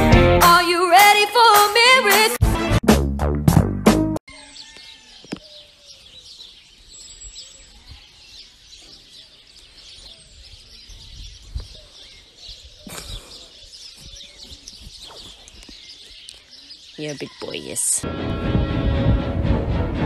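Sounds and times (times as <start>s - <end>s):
small birds chirping: 4.3s - 18.0s
low bumps: 18.1s - 20.0s.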